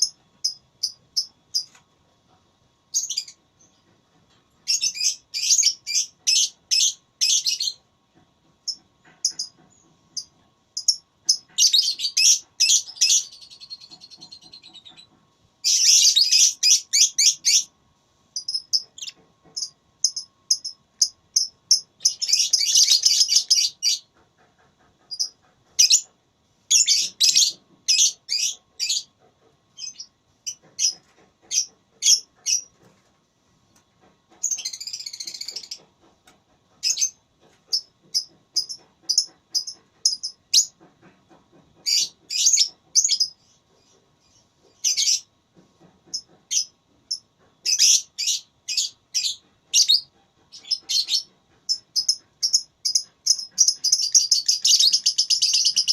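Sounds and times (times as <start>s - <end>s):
lovebirds chirping: 9.2s - 17.7s, 18.4s - 24.1s, 46.5s - 55.9s
lovebird rasping calls: 18.4s - 20.8s.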